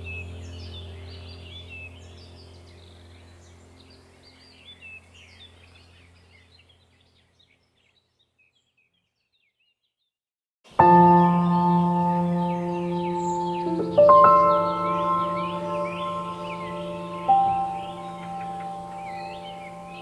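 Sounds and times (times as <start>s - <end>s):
low steady hum: 0.0s - 7.2s, 10.8s - 20.0s
birds chirping: 0.0s - 9.9s, 10.7s - 20.0s
ambient music with bell-like tones: 10.8s - 20.0s.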